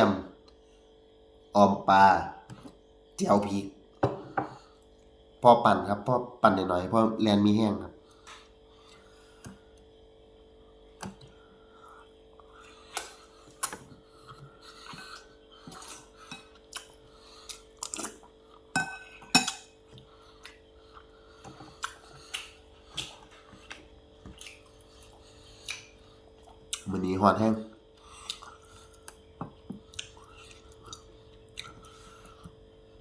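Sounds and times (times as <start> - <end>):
faint steady hum: 0.0 - 33.0
cutlery clinking on a plate: 18.8 - 19.8.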